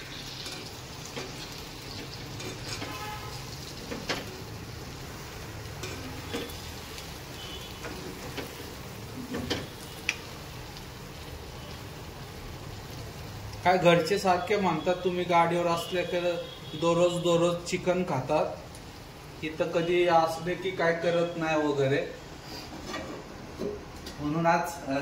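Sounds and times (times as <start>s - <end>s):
curry sizzling in a wok: 0.0s - 22.7s.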